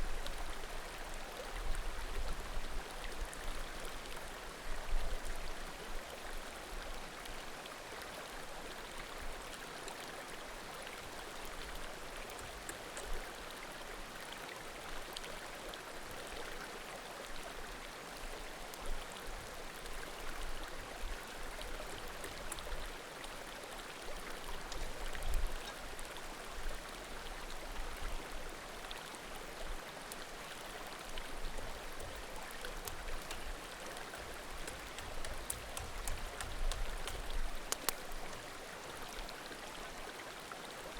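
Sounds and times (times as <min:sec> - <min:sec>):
mountain creek babbling: 0:00.0 - 0:40.9
firewood crackling and popping: 0:32.6 - 0:38.4.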